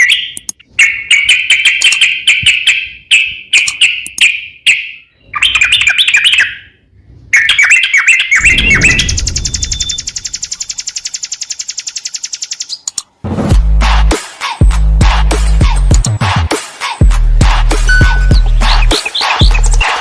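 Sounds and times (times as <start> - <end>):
songbird warbling chirps: 0.0 - 6.8, 17.9 - 19.9
low rumble: 8.4 - 10.7
fast even pulsing: 8.4 - 11.2.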